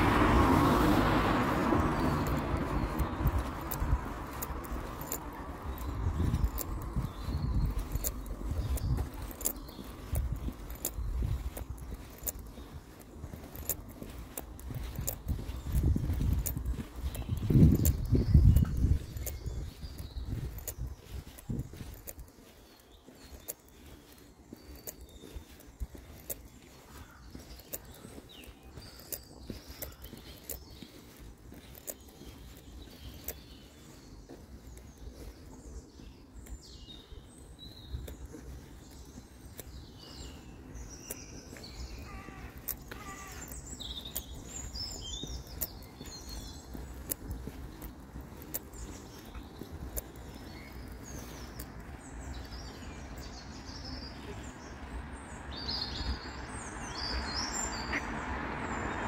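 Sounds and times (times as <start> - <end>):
vehicle rushing noise: 0.0 - 7.0
songbirds chirping and singing: 0.0 - 59.0
steady low rumble: 14.6 - 21.9.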